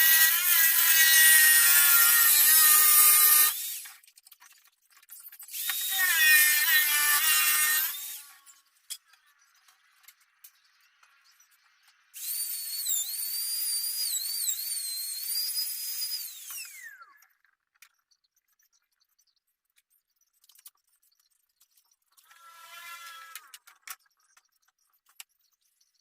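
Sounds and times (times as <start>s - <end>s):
power tool high-pitched whine: 0.0s - 3.9s, 12.2s - 17.2s, 22.3s - 23.5s.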